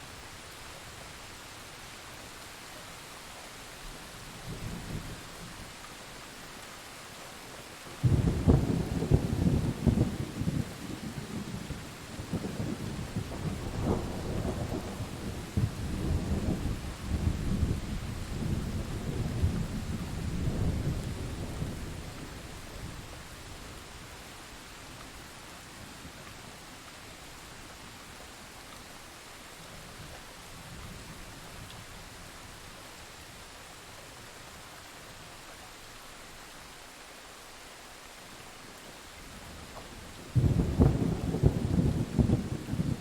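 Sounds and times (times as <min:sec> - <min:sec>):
steady rain hiss: 0:00.0 - 0:43.0
thunder rumbling: 0:08.0 - 0:23.1, 0:40.2 - 0:43.0.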